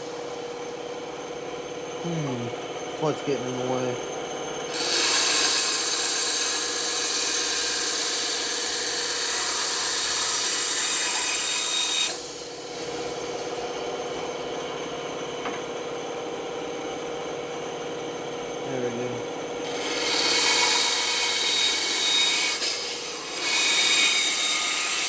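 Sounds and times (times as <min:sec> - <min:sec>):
band saw running: 0:00.0 - 0:16.9, 0:17.7 - 0:25.0
saw blade cutting wood: 0:04.7 - 0:12.3, 0:19.6 - 0:25.0.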